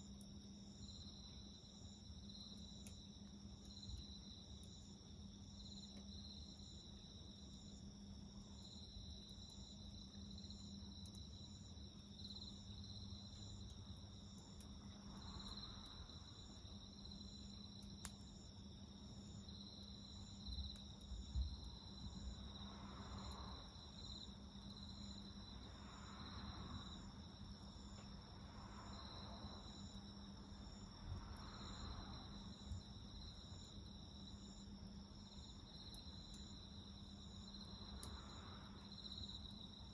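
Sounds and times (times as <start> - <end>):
crickets chirping: 0.0 - 39.9
campfire crackling: 0.1 - 39.9.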